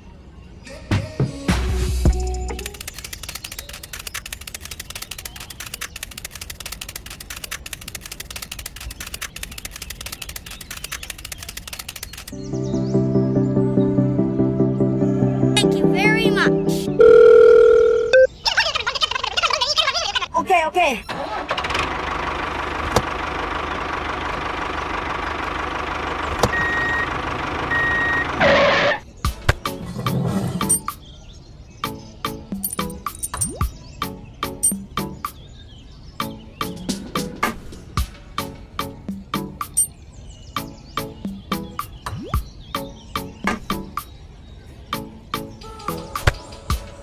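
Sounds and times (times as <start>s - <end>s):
clay bricks clicking together: 2.6s - 12.4s
tractor engine idling: 21.1s - 28.9s
reversing beep: 26.5s - 27.1s, 27.7s - 28.9s.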